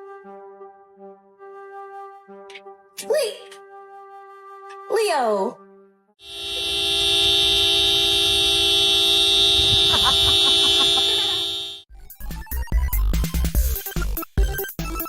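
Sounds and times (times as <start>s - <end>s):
long horn-like blast: 6.2s - 11.9s
choppy music with thumps: 12.0s - 15.0s.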